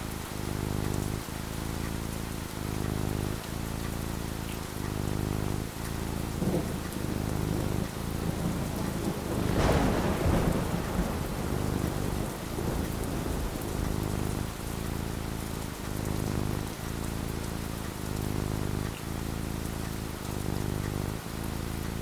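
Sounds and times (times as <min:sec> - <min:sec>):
heavy rain: 0:00.0 - 0:22.0
rolling rumble of thunder: 0:05.2 - 0:19.0
thunderclap: 0:06.2 - 0:16.8.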